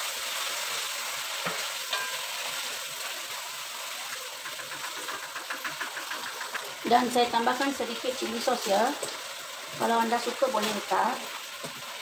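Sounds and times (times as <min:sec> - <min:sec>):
food sizzling in a wok: 0:00.0 - 0:12.0
wooden spatula stirring: 0:04.4 - 0:09.9.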